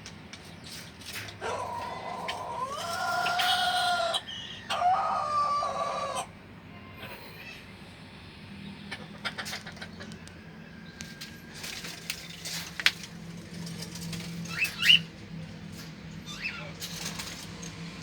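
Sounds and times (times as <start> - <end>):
scratchy clicks and rustling: 11.0 - 14.7.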